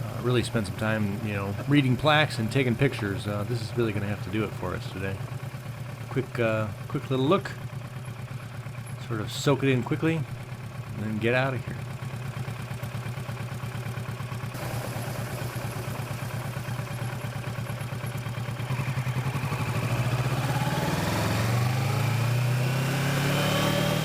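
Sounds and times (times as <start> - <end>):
motorcycle engine revving: 12.1 - 24.0.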